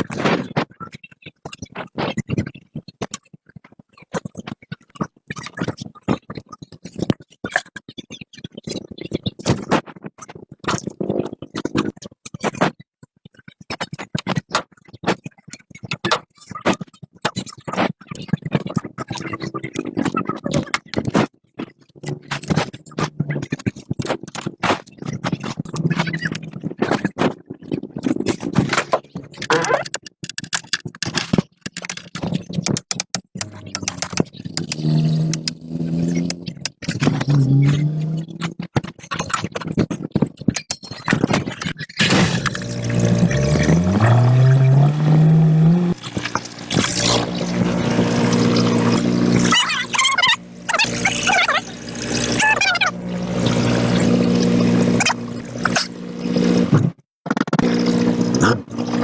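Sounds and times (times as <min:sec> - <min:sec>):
sharp clicks and knocks: 0:28.1 - 0:38.5
machine humming: 0:42.0 - 0:56.8, 0:57.6 - 0:59.0.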